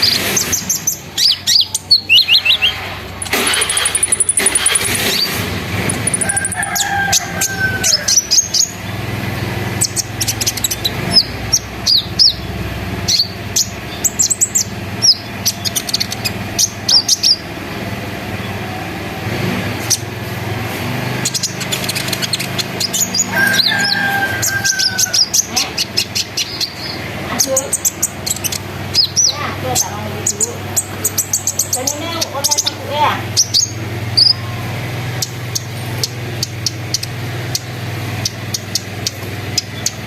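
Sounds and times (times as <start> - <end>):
bird chirping and trilling: 0.0 - 40.0.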